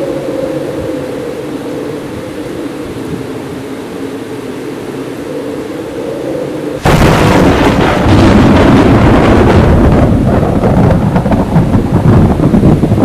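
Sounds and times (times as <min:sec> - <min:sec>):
heavy rain: 0:00.0 - 0:13.0
thunder crack and rumble: 0:06.8 - 0:13.0.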